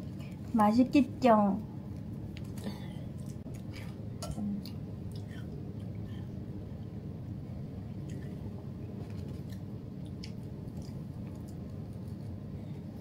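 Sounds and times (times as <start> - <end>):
low room hum: 0.0 - 13.0
crunchy chips being chewed: 7.9 - 12.4.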